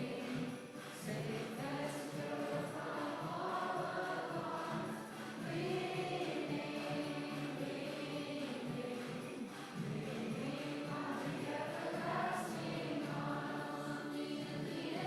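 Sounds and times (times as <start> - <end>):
group singing worship song: 0.0 - 15.0.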